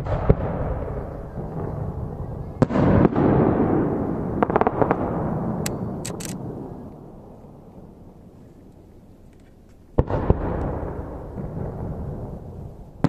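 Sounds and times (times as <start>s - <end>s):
crackling firework reports: 0.0s - 5.6s
rolling echo rumble: 0.0s - 13.0s.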